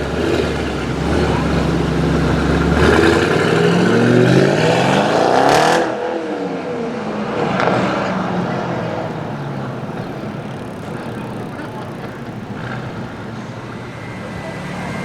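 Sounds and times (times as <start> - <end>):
sports car engine revving: 0.0 - 15.0.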